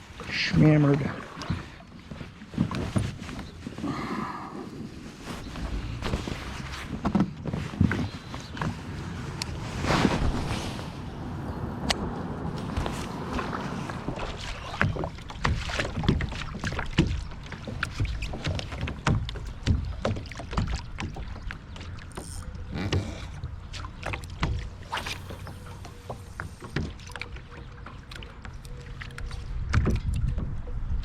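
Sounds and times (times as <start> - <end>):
knocks and splashes: 0.0 - 3.8, 11.8 - 30.8
water slapping boat hull: 0.0 - 31.0
wind rumble on microphone: 1.4 - 23.7, 29.2 - 31.0.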